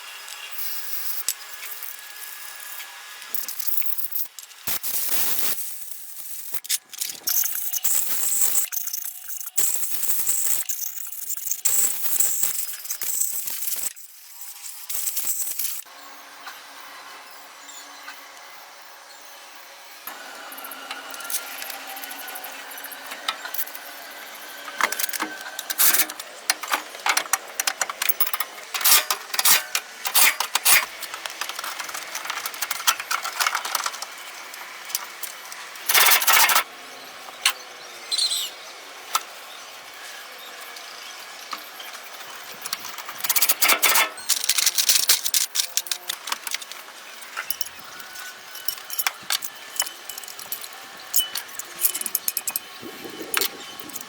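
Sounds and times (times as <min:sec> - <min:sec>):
hard objects clicking and clanking: 0:24.7 - 0:36.6, 0:42.5 - 0:54.0.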